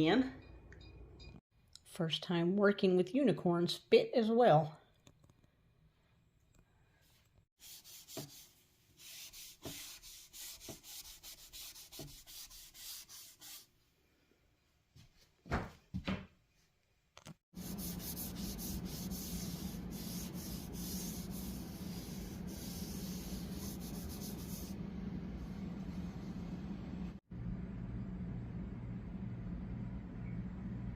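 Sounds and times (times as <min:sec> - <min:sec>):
hand rubbing plywood: 0:07.6 - 0:13.6, 0:17.6 - 0:24.8
steady hum with hiss: 0:17.6 - 0:30.9.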